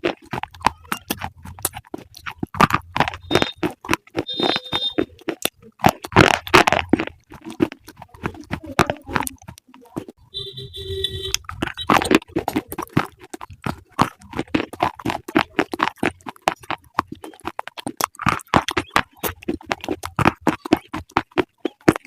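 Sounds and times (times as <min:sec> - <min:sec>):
crunchy food being chewed: 0:00.0 - 0:22.0.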